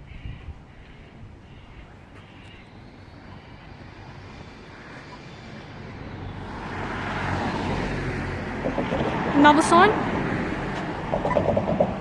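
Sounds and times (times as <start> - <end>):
vehicle engine approaching: 2.8 - 12.0.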